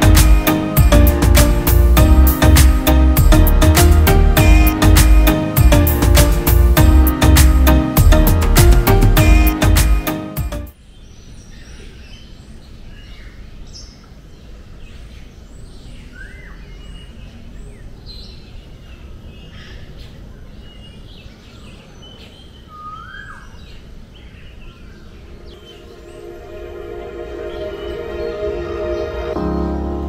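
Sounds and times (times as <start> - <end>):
birds chirping: 15.0 - 30.0
swooping whistled bird calls: 22.7 - 23.6.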